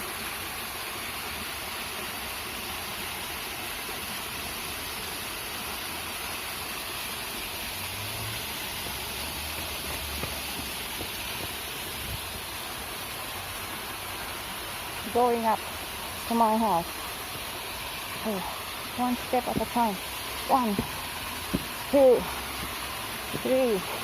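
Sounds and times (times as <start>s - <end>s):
stream water rushing: 0.0s - 24.0s
low thumps: 20.5s - 23.5s.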